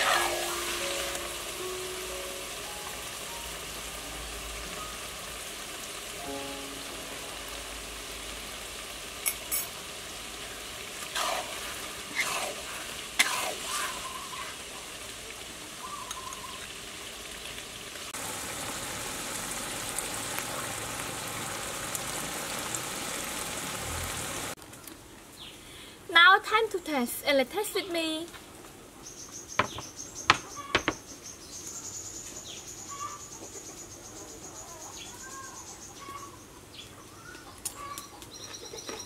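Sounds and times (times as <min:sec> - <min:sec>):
food sizzling in a wok: 0:00.0 - 0:24.6
metal ladle scraping pan: 0:11.1 - 0:14.1.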